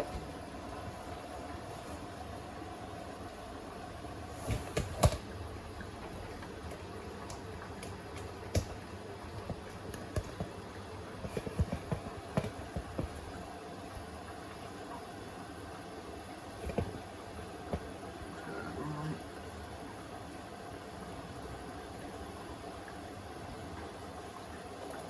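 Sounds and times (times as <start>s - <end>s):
washing machine humming: 0.0s - 25.0s
washing machine clicks and knocks: 4.5s - 5.4s, 6.4s - 13.4s.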